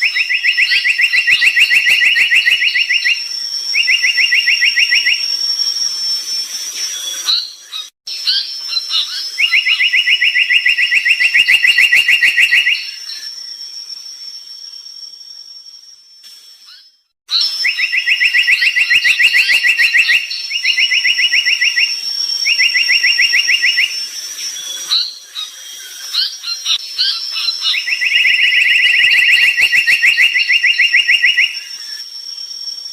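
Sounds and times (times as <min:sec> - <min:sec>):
bird singing pulsed trills: 0:00.0 - 0:32.9.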